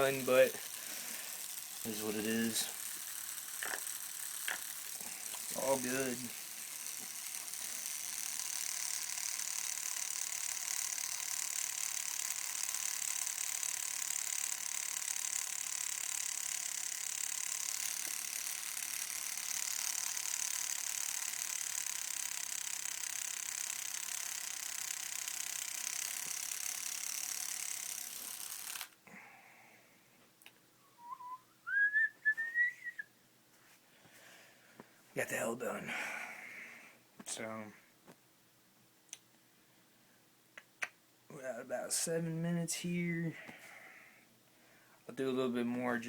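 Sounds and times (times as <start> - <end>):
tattoo machine whirring: 0.0 - 29.0.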